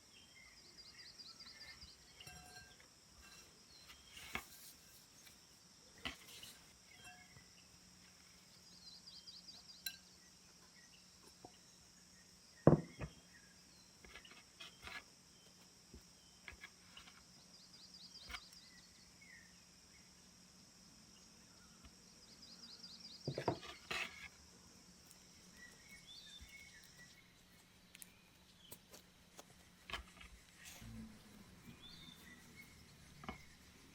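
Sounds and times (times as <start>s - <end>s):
high insect chorus: 0.0s - 29.0s
dishes and utensils clinking: 2.2s - 3.5s.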